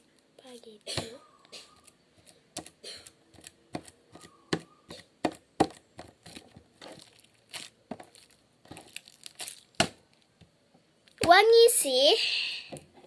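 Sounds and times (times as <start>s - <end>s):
sticky slime squeezed and pulled: 6.3s - 9.9s.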